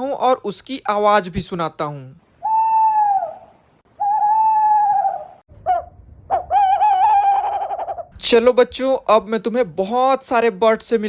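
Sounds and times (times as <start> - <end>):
owl hooting: 2.4 - 8.1.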